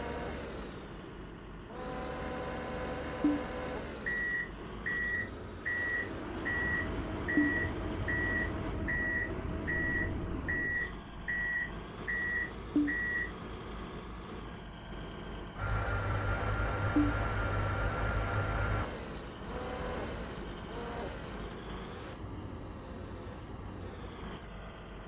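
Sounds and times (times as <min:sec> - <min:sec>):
diesel engine running: 0:00.0 - 0:25.0
engine with steady whine: 0:00.0 - 0:25.0
truck reversing alarm beeping: 0:03.1 - 0:13.4, 0:15.7 - 0:18.8.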